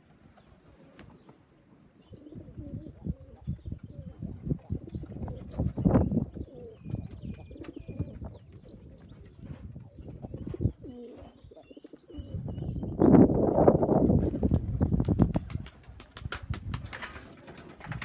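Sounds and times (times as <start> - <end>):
pigeons cooing: 2.0 - 13.5.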